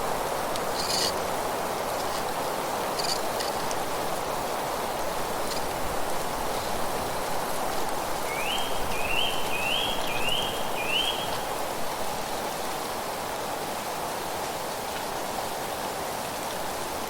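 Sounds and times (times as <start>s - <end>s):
wind through foliage: 0.0s - 17.0s
bird whistling rising notes: 8.3s - 11.4s.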